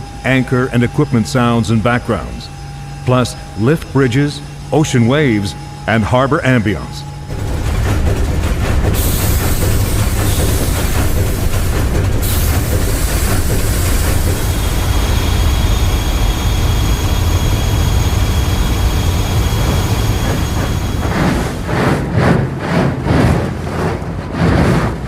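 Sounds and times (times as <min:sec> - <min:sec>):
faint high whine: 0:00.0 - 0:07.3, 0:12.9 - 0:21.6
machinery hiss: 0:00.0 - 0:22.0
ship machinery rumbling: 0:00.0 - 0:25.0.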